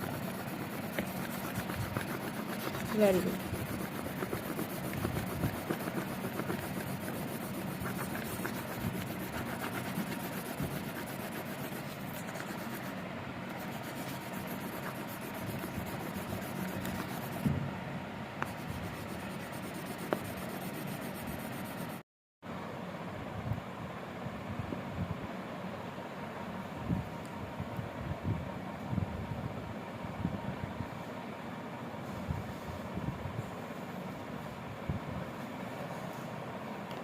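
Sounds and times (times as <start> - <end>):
pencil rubbing on paper: 0.0 - 17.5, 18.4 - 22.0
faint constant hum: 0.0 - 37.0.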